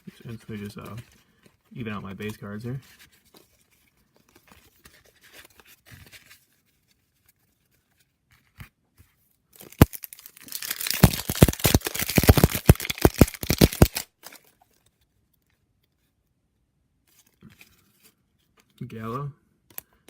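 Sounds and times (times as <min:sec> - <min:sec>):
sharp snap of wrapper: 0:09.6 - 0:14.1
foil wrapper tearing and crinkling: 0:09.6 - 0:14.7.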